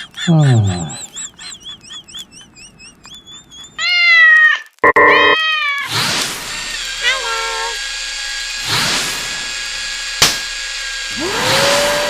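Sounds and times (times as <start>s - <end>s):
faint high warbling chirping: 0.0s - 4.0s
cat meowing loudly: 3.8s - 5.9s, 7.0s - 7.8s.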